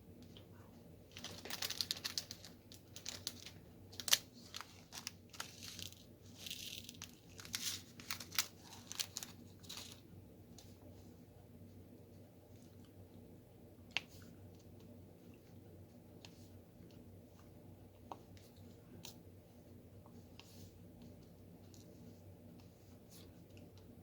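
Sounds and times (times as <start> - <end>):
plastic bag crinkling: 1.1 - 10.0.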